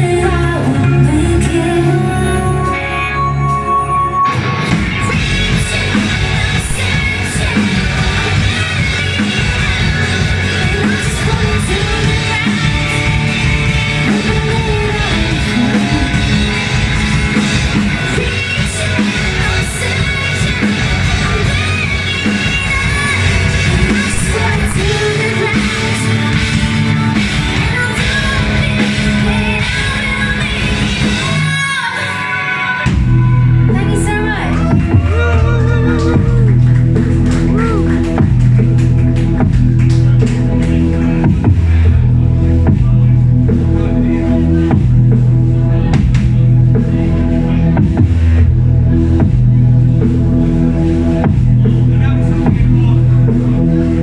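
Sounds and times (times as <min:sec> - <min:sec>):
person singing: 0:00.0 - 0:03.5, 0:04.9 - 0:17.0, 0:17.6 - 0:38.2
live rock band: 0:00.0 - 0:54.0.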